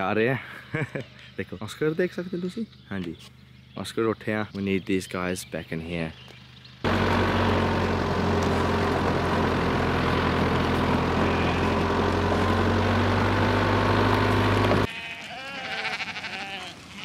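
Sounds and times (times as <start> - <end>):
motor humming: 6.9 - 14.9
sheep bleating: 11.0 - 12.1, 14.8 - 17.0.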